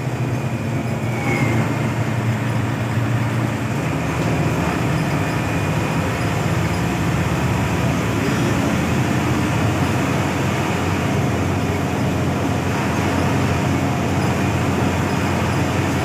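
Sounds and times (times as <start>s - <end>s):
bus diesel engine drone: 0.0s - 16.0s
road noise: 0.0s - 16.0s
faint squeak: 0.9s - 2.0s.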